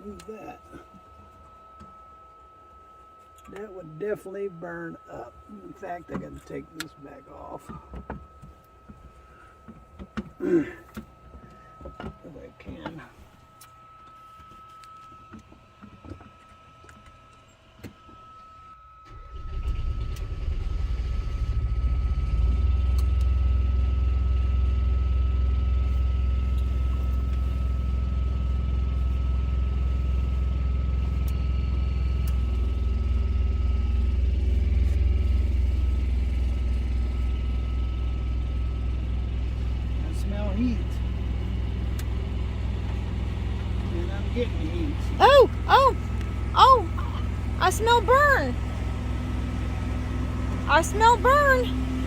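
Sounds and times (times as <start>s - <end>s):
diesel truck engine idling: 19.3s - 52.0s.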